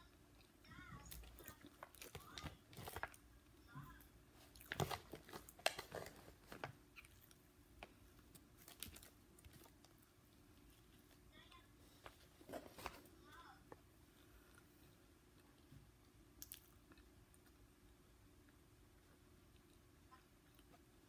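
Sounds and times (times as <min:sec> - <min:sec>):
chewing and crunching fried chicken: 0:00.0 - 0:03.4, 0:04.4 - 0:10.9, 0:14.4 - 0:21.0.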